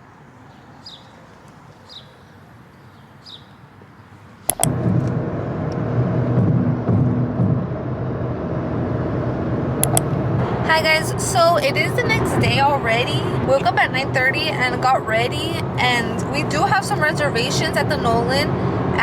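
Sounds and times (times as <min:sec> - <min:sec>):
car cabin road and engine noise: 0:00.0 - 0:19.0
sharp click: 0:04.5 - 0:05.1, 0:09.8 - 0:10.1.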